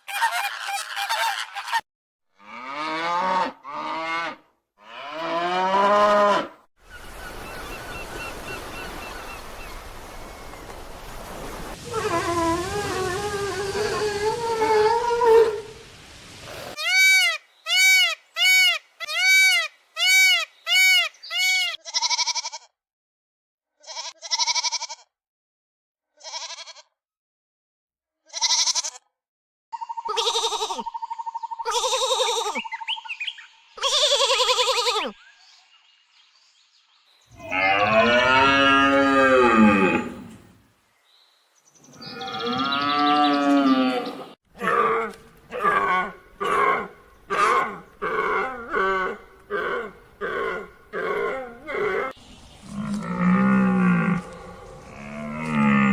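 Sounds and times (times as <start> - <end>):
long low animal calls: 11.7 - 16.0, 42.0 - 55.9.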